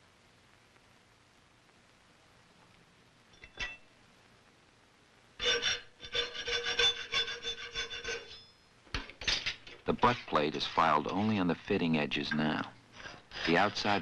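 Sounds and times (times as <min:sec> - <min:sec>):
hand file scraping metal: 0:05.4 - 0:08.5, 0:09.9 - 0:11.8, 0:13.0 - 0:14.0
metal plate ringing: 0:06.8 - 0:08.6.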